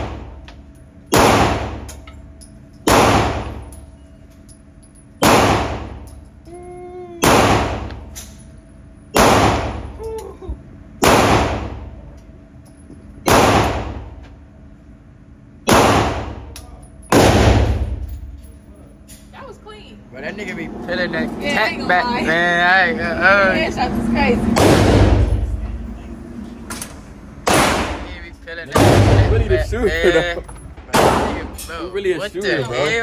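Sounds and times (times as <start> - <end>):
gunshots with ringing echo: 1.1 - 1.9, 2.9 - 3.7, 5.2 - 6.1, 7.2 - 8.2, 9.2 - 10.0, 11.0 - 12.0, 13.3 - 14.2, 15.7 - 18.4, 24.5 - 25.6, 27.4 - 29.6, 30.9 - 31.6.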